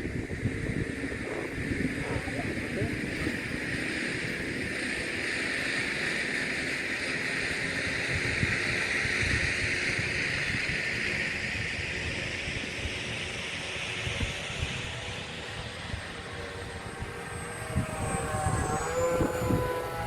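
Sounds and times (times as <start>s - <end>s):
model airplane motor buzzing: 0.0s - 20.0s
wind buffeting microphone: 0.0s - 20.0s.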